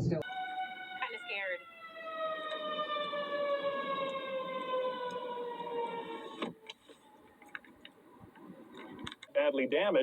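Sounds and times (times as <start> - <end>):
siren wailing: 0.2 - 7.3.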